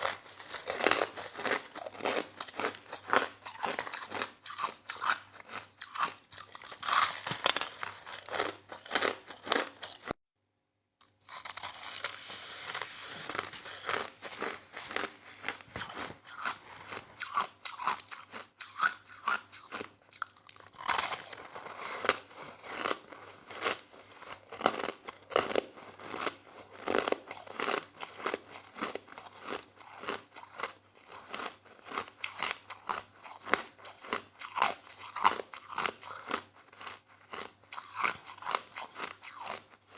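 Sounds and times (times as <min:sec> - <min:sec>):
ice being chewed: 0:00.0 - 0:10.2, 0:11.0 - 0:39.9.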